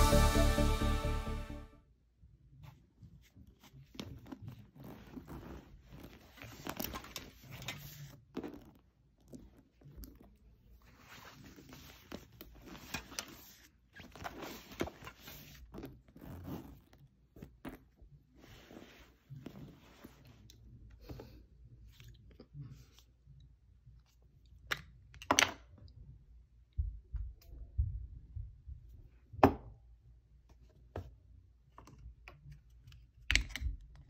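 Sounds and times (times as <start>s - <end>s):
handbag rustling and clicking: 3.9s - 10.4s, 14.0s - 18.0s.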